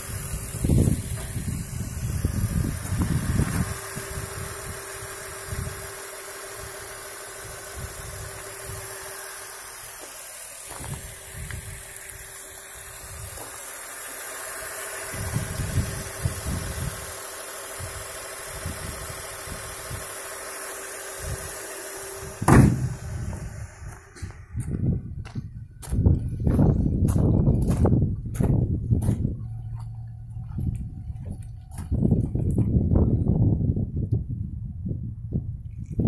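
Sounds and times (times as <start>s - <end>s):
car engine idling: 0.0s - 33.5s
car bonnet shutting with a thud: 22.3s - 24.4s.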